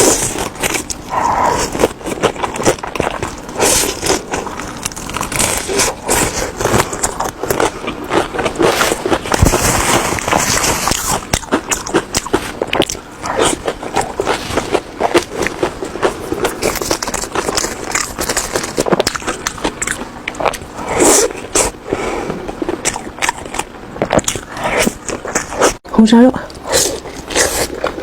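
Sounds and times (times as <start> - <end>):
chewing and crunching food: 0.0 - 28.0.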